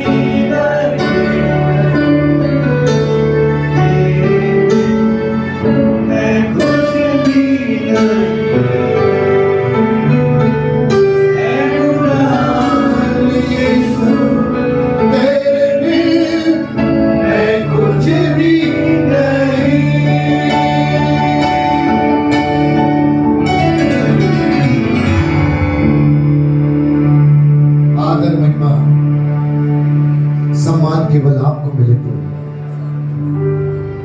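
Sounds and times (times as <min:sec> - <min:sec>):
keyboard chords: 0:00.0 - 0:34.0
man singing worship song: 0:11.4 - 0:21.9.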